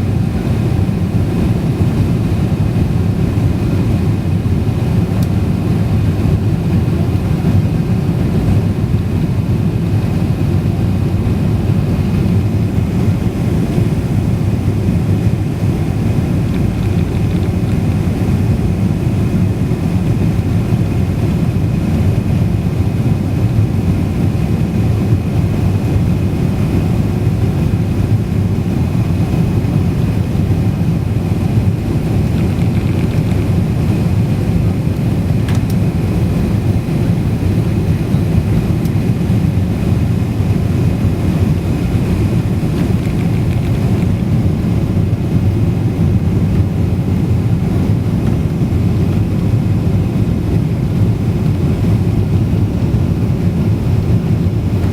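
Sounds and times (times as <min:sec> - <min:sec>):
airliner engine rumble in cabin: 0:00.0 - 0:54.9.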